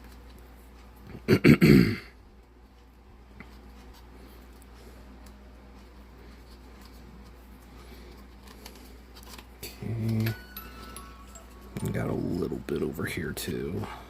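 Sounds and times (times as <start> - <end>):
person clearing throat: 1.1 - 2.2.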